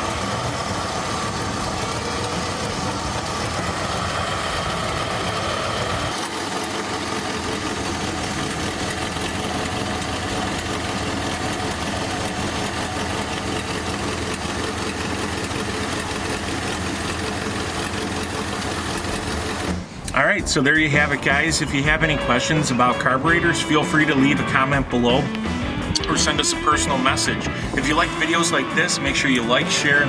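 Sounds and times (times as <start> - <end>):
car engine idling: 0.0 - 30.0
higher tone: 20.1 - 30.0.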